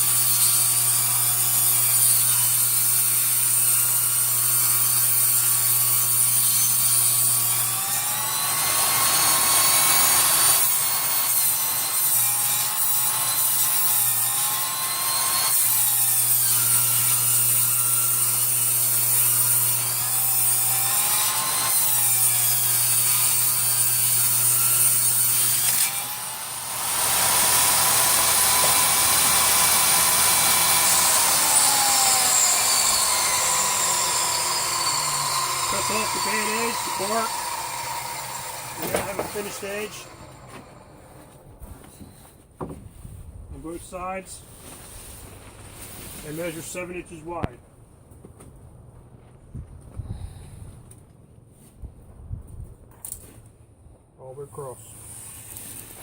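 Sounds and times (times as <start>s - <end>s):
power saw ripping wood: 0.0s - 41.5s, 44.7s - 47.0s.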